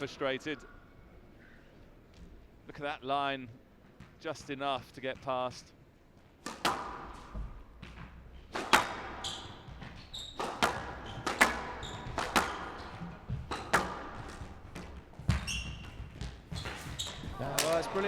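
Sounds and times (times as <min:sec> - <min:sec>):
squash ball cracking off rackets: 0:06.4 - 0:18.0
shoes squeaking on court floor: 0:07.1 - 0:18.0.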